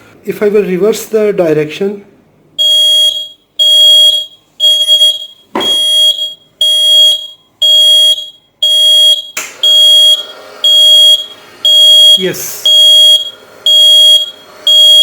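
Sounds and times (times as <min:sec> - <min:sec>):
reversing beeper: 0:02.6 - 0:15.0
knock: 0:05.5 - 0:05.8.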